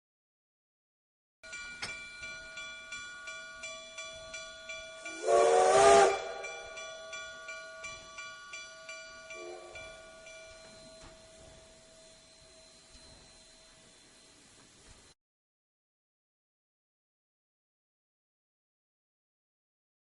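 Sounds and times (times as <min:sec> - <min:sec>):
loud whistle with hiss: 0:05.1 - 0:06.7.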